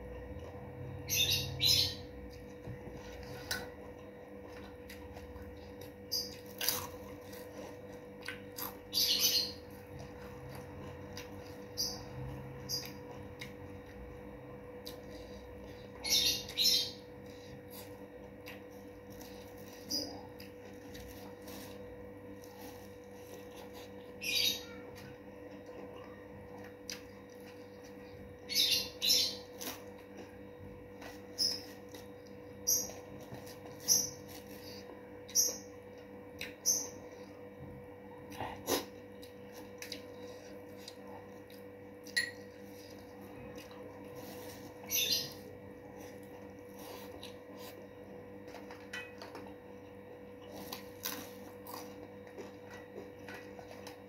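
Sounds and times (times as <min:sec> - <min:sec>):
electrical hum: 0:00.0 - 0:54.0
crunching fried food: 0:00.4 - 0:37.4, 0:49.7 - 0:54.0.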